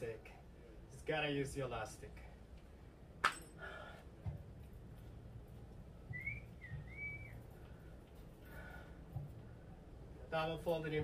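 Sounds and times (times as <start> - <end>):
bird whistling: 6.1 - 7.5.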